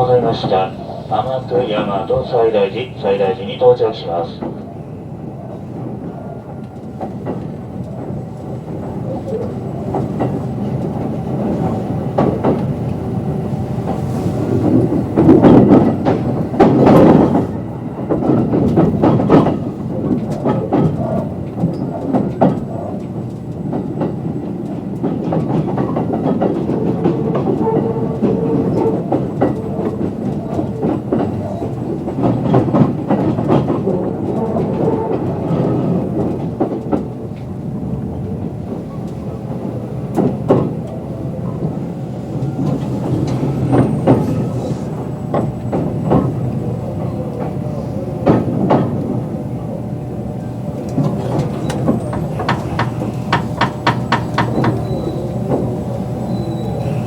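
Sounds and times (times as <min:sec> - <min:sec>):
train running noise inside car: 0:00.0 - 0:57.0
wheels clattering over rail joints: 0:50.8 - 0:56.7.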